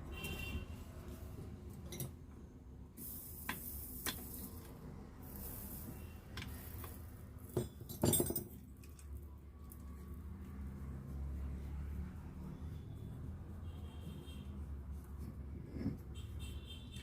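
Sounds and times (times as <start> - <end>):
metal tools clinking: 7.5 - 8.6.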